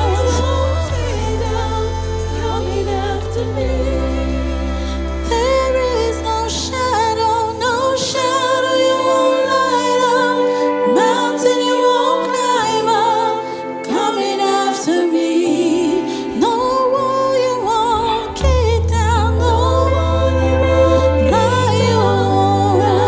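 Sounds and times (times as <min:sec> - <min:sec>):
instrumental accompaniment with bass: 0:00.0 - 0:23.0
person singing gospel song: 0:00.0 - 0:23.0.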